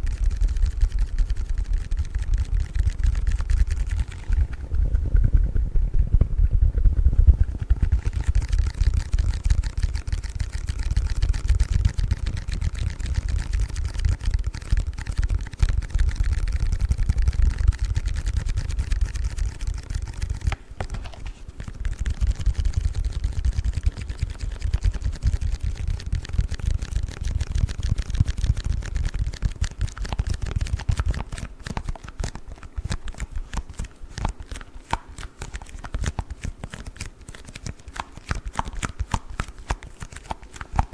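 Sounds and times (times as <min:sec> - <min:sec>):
hands handling foam package: 0:20.2 - 0:21.8.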